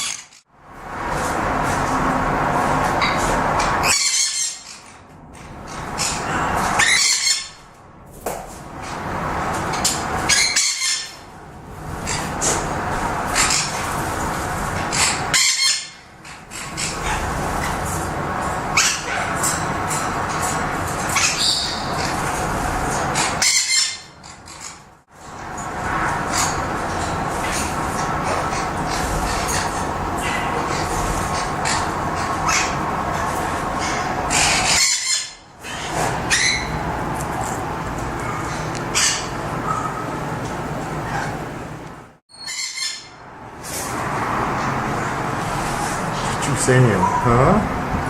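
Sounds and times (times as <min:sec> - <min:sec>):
parrots squawking: 0:00.0 - 0:00.4, 0:02.8 - 0:05.0, 0:05.6 - 0:07.6, 0:09.7 - 0:11.3, 0:12.0 - 0:14.2, 0:14.8 - 0:17.8, 0:18.7 - 0:24.9, 0:26.1 - 0:36.9, 0:38.2 - 0:40.1, 0:42.3 - 0:43.2.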